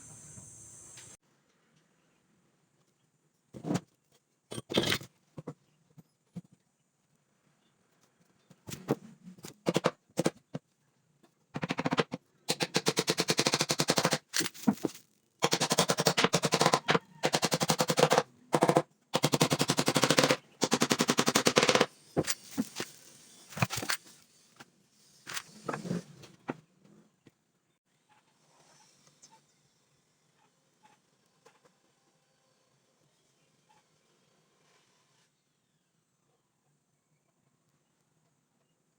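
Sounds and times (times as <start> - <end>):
impact driver hammering screws: 15.4 - 24.1.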